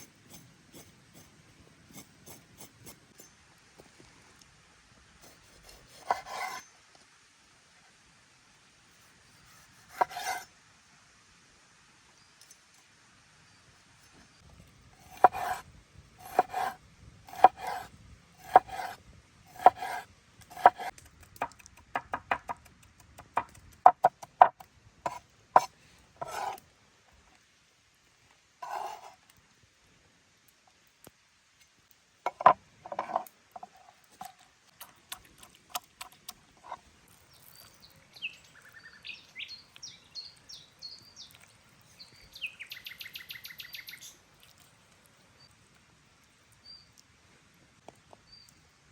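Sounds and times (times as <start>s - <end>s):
knife chopping on wooden board: 15.1s - 15.6s, 16.2s - 26.6s
birds chirping: 37.3s - 44.2s.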